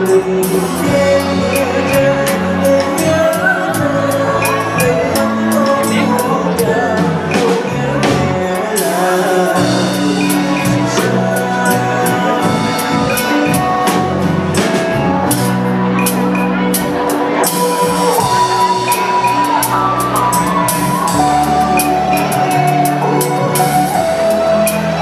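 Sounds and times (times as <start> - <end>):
drum kit strokes: 0.0 - 25.0
live band playing a slow ballad: 0.0 - 25.0.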